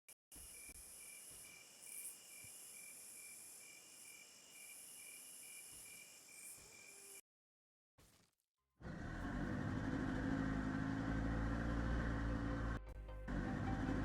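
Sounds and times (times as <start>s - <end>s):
crickets chirping: 0.4s - 7.2s
insect buzzing drone: 0.4s - 7.2s.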